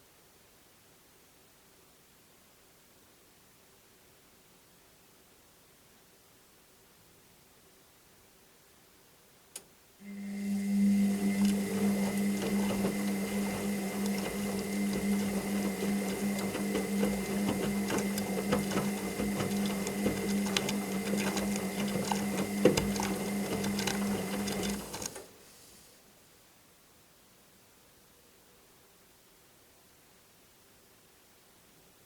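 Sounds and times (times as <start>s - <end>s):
washing machine running: 10.0s - 25.3s.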